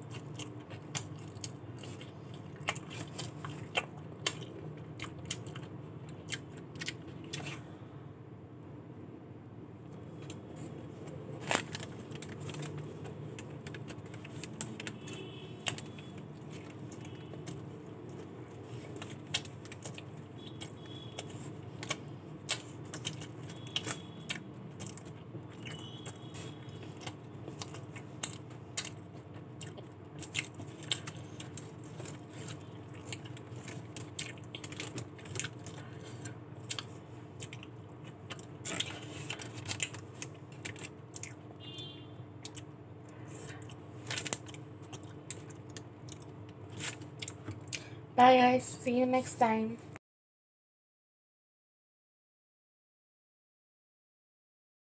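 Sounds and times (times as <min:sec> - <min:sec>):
chewing a burger: 0:00.0 - 0:07.8, 0:09.9 - 0:48.0
crackles from handling food: 0:10.2 - 0:42.7, 0:43.4 - 0:48.0.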